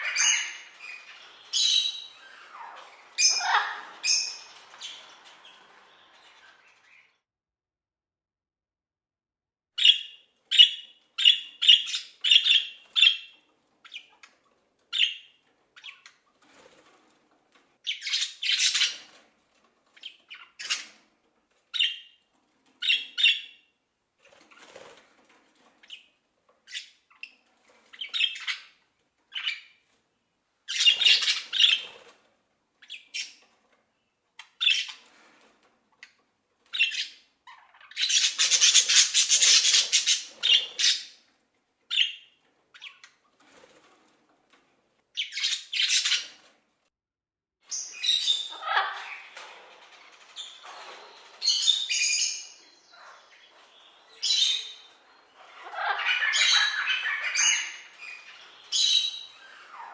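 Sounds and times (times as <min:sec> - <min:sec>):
parrots calling: 0:00.0 - 0:07.2, 0:30.7 - 0:31.9, 0:36.7 - 0:41.2, 0:47.7 - 0:59.9.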